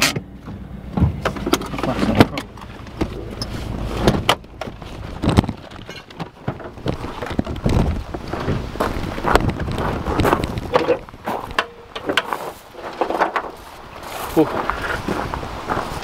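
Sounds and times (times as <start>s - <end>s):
car door clunks: 0.0s - 5.5s
car engine idling: 0.0s - 7.2s.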